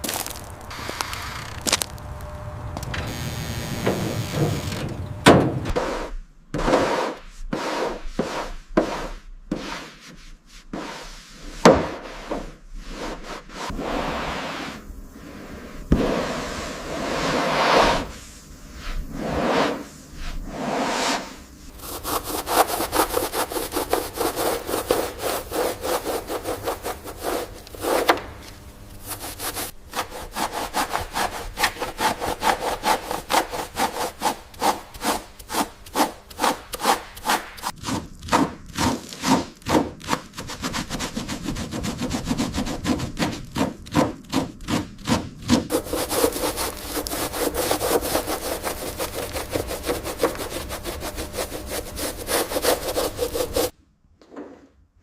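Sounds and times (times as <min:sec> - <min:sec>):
hand sanding strokes: 0:05.8 - 0:28.2, 0:29.0 - 0:38.0, 0:38.8 - 0:53.7.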